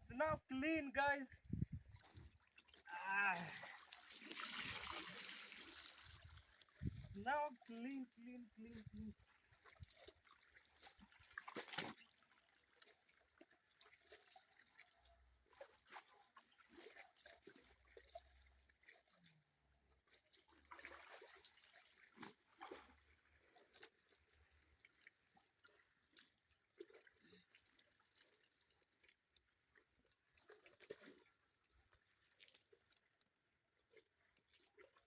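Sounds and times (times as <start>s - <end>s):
water splashing: 0.0s - 14.9s, 20.4s - 25.1s.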